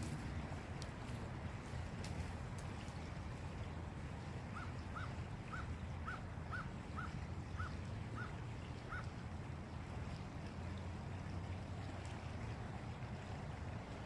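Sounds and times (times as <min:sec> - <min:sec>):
flowing water: 0:00.0 - 0:14.0
bird calling: 0:04.5 - 0:09.1.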